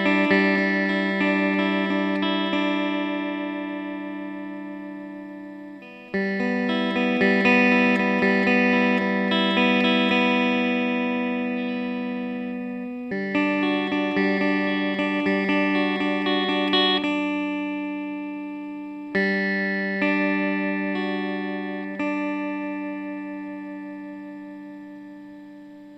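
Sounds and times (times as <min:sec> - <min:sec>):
plucked guitar music: 0:00.0 - 0:25.9.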